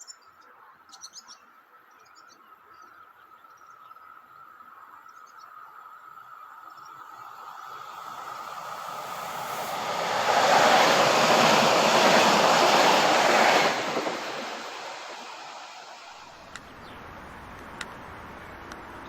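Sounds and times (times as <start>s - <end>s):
train passing by: 6.5s - 19.0s.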